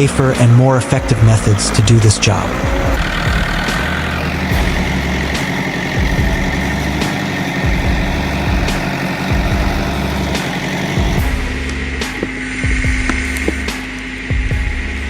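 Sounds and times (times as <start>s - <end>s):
diesel engine running: 0.0s - 13.9s.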